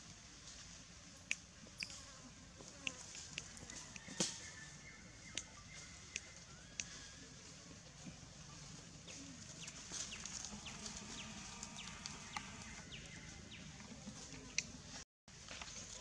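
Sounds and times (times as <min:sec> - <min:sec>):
dry leaves rustling: 0:05.8 - 0:16.0
birds chirping: 0:09.0 - 0:15.0.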